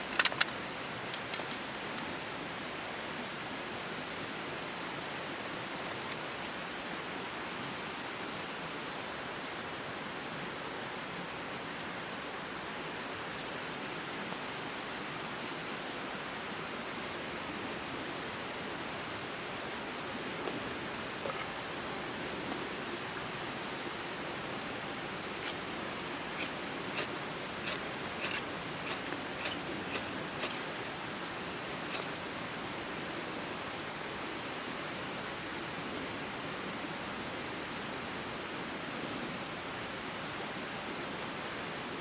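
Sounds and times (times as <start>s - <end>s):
water rushing: 18.6s - 34.0s.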